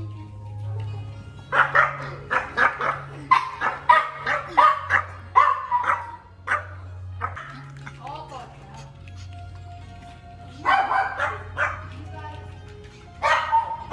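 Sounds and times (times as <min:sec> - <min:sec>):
background music: 0:00.0 - 0:13.9
dog barking: 0:01.4 - 0:07.7, 0:10.6 - 0:12.0, 0:13.2 - 0:13.9.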